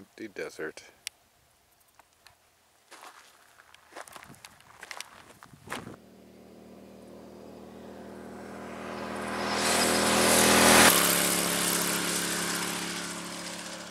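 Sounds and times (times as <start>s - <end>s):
motorcycle riding past: 5.6s - 13.9s.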